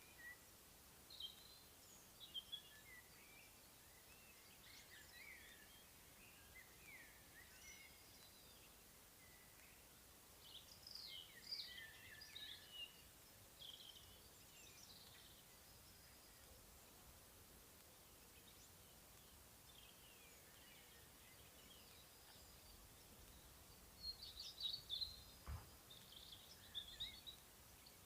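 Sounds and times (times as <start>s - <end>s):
background hiss: 0.0s - 28.0s
faint birdsong: 0.0s - 28.0s.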